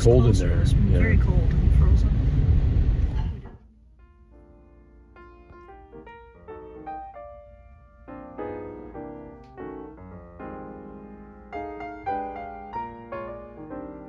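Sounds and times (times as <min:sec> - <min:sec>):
slow piano music: 0:03.6 - 0:14.0.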